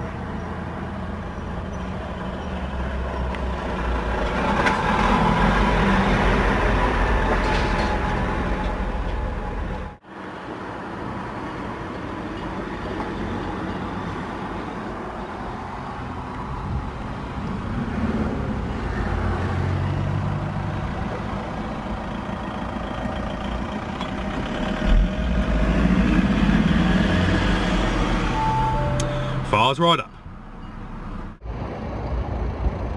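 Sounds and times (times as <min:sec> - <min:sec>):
vehicle rumble: 0:00.0 - 0:32.9
car engine starting and idling: 0:19.6 - 0:32.9.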